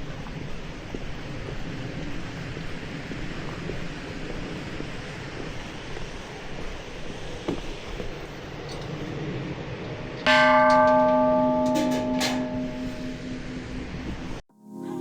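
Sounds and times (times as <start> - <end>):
rushing background hiss: 0.0 - 15.0
bell ringing: 10.3 - 13.7.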